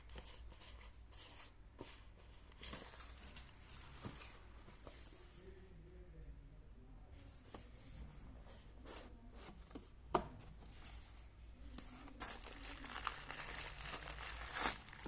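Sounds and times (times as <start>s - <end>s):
packaging rustling: 12.1s - 15.0s.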